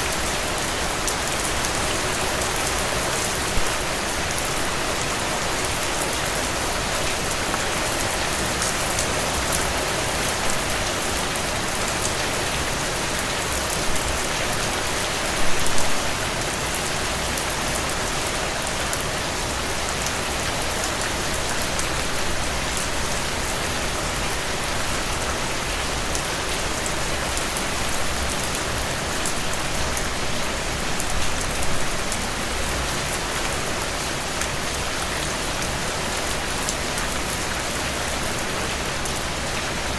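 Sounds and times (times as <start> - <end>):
steady dense rainfall: 0.0 - 39.9.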